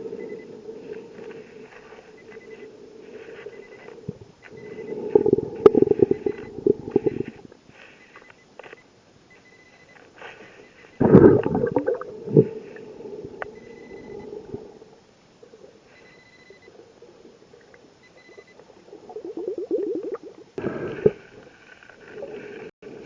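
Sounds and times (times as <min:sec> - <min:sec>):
underwater exhaled bubbles: 0:04.0 - 0:07.5, 0:11.0 - 0:14.9, 0:18.8 - 0:21.4
short high beeps: 0:04.6 - 0:07.4.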